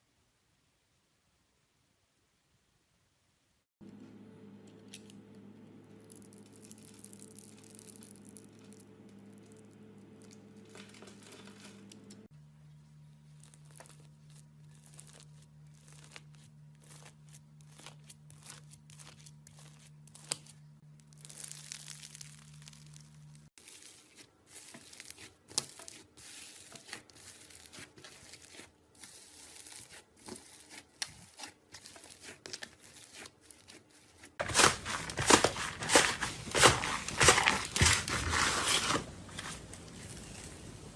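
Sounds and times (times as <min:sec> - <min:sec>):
low background hum: 0:03.8 - 0:40.9
slime squished by hand: 0:13.4 - 0:38.5.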